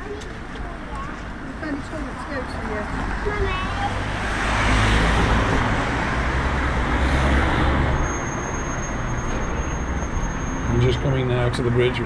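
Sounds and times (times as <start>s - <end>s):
vehicle passing on wet road: 3.9s - 8.0s.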